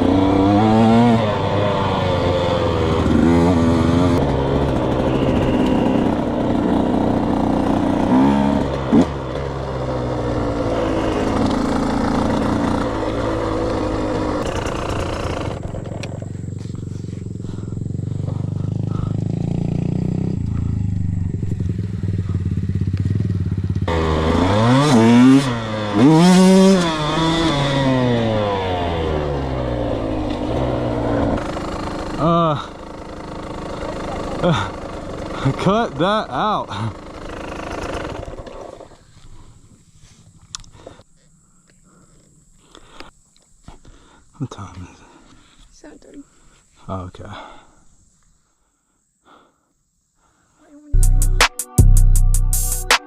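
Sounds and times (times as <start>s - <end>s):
dirt bike engine revving: 0.0s - 39.2s.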